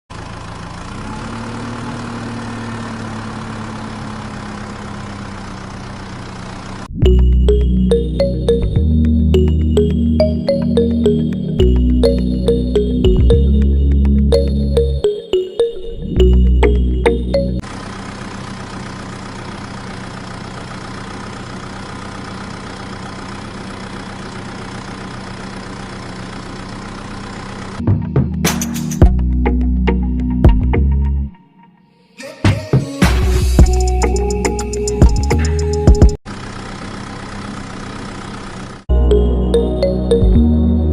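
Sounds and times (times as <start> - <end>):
background music: 7.0 - 17.6, 38.9 - 40.9.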